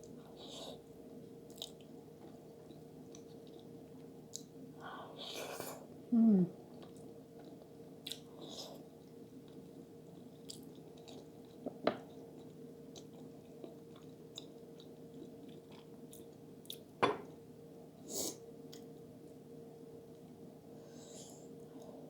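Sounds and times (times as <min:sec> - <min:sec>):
faint steady hum: 0:00.0 - 0:22.0
chewing food: 0:01.5 - 0:04.5, 0:06.6 - 0:16.9
breath: 0:20.8 - 0:22.0.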